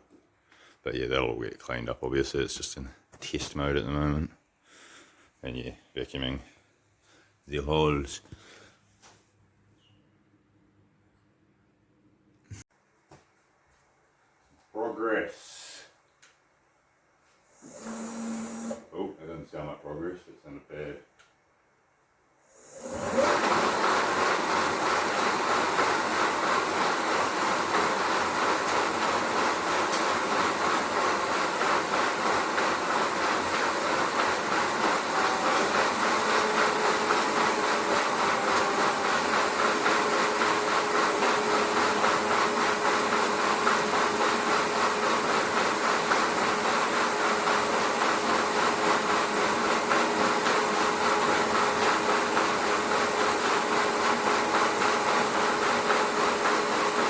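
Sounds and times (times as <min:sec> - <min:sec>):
rotary hammer drill boring into concrete: 0:17.6 - 0:18.8.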